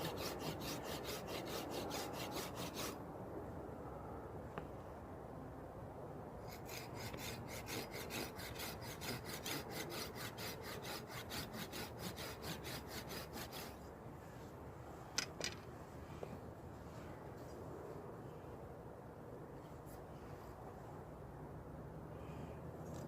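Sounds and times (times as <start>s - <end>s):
hand saw cutting wood: 0.0s - 3.0s, 6.4s - 13.8s.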